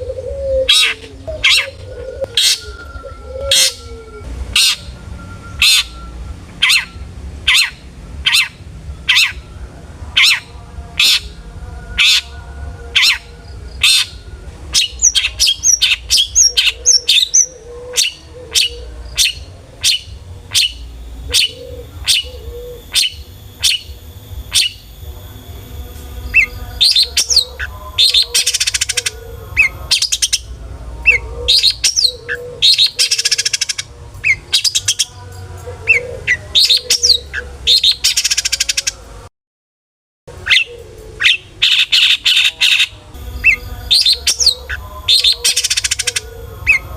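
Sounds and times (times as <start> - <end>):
bird song with sharp calls: 4.6 - 9.4, 14.8 - 25.0, 26.3 - 39.0, 40.5 - 46.9
harsh buzzing rasps: 18.8 - 31.9.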